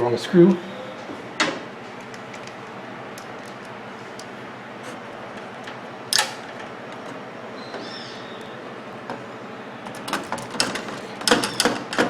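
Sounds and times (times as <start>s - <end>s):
sharp clicks of parts: 5.3s - 7.1s, 9.9s - 12.0s.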